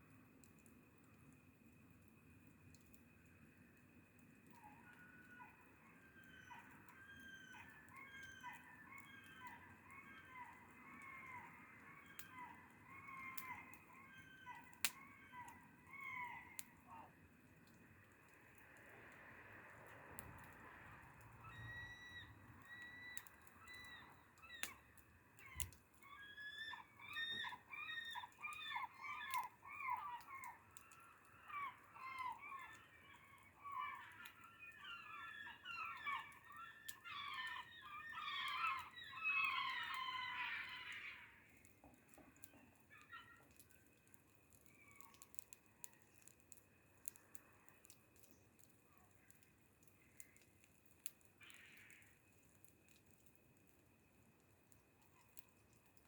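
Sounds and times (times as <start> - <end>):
faint clicks: 14.5 - 16.8, 17.5 - 26.2, 40.8 - 53.8
flock of birds calling: 25.4 - 41.4.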